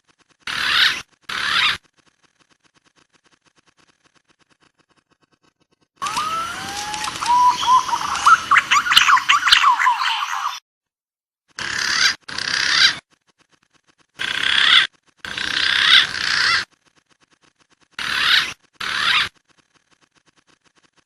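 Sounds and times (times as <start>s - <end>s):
pigeon calls: 6.0s - 10.6s, 14.2s - 16.7s, 18.0s - 19.4s.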